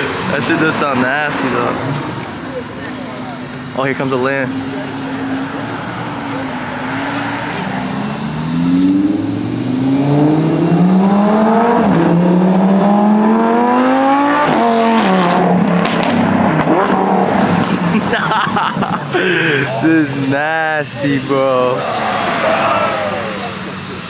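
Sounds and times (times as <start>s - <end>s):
car engine revving: 0.0s - 24.0s
exhaust crackles: 14.4s - 24.0s.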